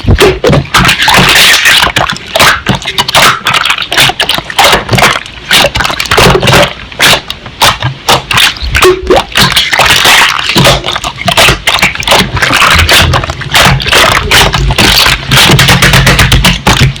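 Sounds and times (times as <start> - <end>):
crackling and popping clicks: 0.0 - 17.0.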